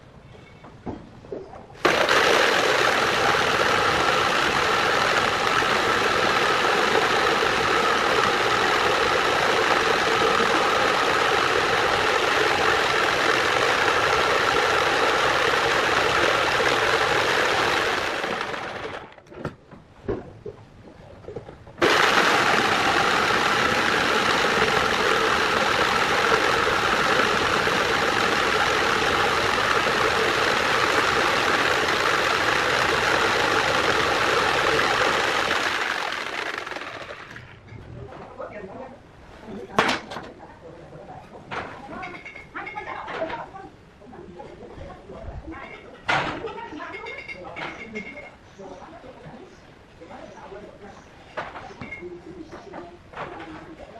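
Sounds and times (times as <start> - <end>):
angle grinder running: 1.8 - 19.2, 21.8 - 37.6.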